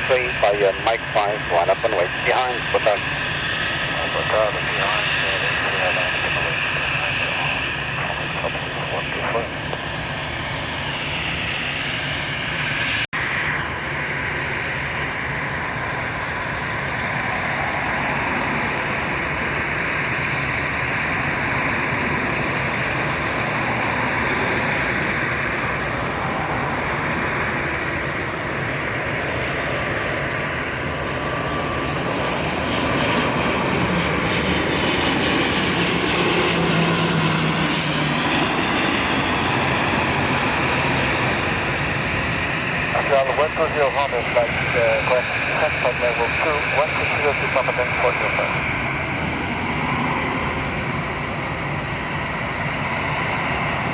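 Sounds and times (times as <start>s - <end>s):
high engine whine: 0.0s - 53.9s
jet engines running: 0.0s - 53.9s.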